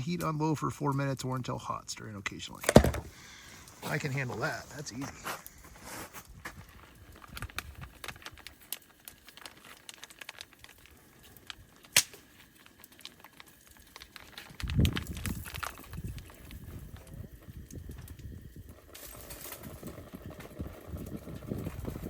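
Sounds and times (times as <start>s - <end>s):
food pouches crinkling: 3.1s - 21.7s.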